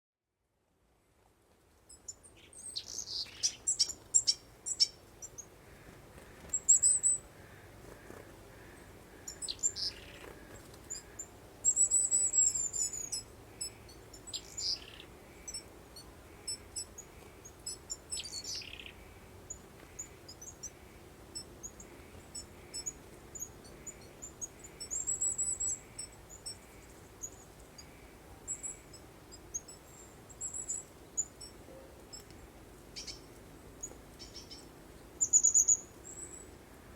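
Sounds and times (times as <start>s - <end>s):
soft steady breeze: 0.4s - 36.9s
birds chirping and singing: 8.1s - 15.7s.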